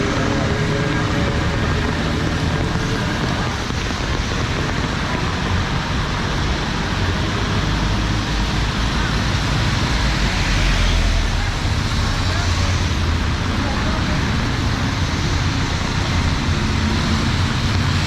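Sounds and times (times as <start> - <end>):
rain hissing: 0.0 - 10.8
car engines rumbling: 0.0 - 18.0
tyres on wet road: 0.0 - 18.0.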